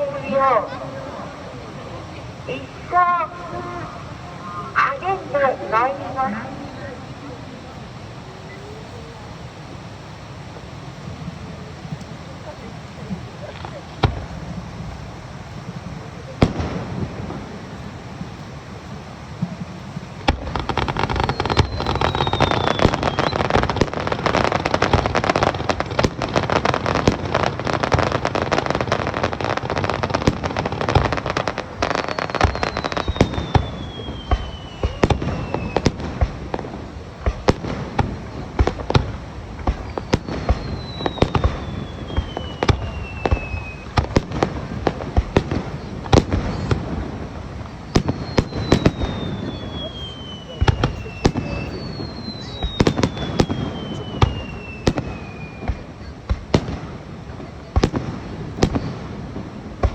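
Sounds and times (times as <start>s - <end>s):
firework bursts and crackling: 0.0s - 59.9s
falling firework whistle: 20.2s - 58.0s.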